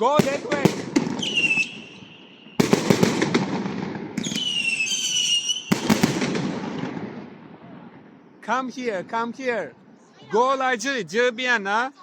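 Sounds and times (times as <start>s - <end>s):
firework bangs and crackles: 0.0s - 8.1s
firework whistles: 1.1s - 2.9s, 4.2s - 6.1s.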